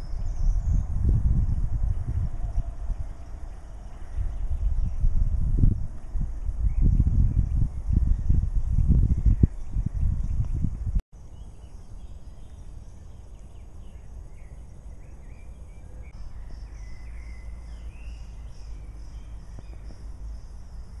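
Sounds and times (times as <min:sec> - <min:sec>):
steady low rumble: 0:00.0 - 0:11.0
small birds chirping: 0:00.0 - 0:21.0.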